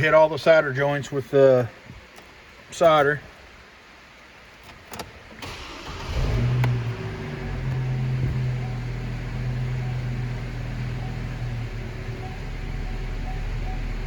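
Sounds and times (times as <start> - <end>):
truck engine starting and idling: 4.9 - 14.0.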